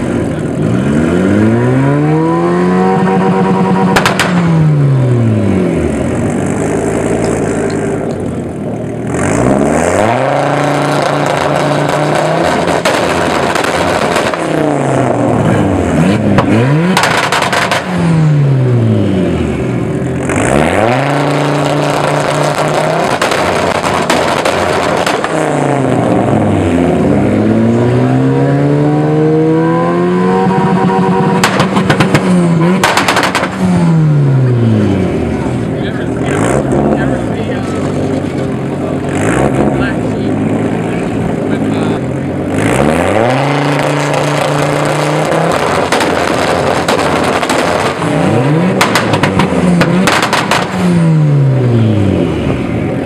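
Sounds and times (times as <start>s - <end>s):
car engines revving hard: 0.0s - 53.0s
antilag pops and bangs: 4.0s - 4.4s, 16.4s - 17.9s, 23.0s - 25.4s, 31.4s - 33.6s, 48.8s - 50.8s.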